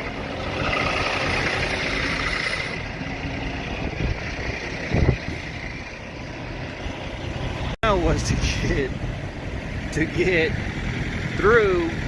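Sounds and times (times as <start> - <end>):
engine idling: 0.0 - 12.0
wind gusting on microphone: 2.3 - 6.1.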